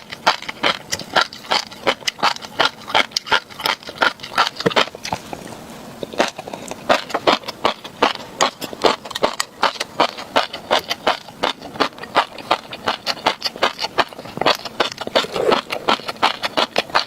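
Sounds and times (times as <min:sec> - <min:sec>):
chewing crisp pops and crunches: 0:00.0 - 0:17.0.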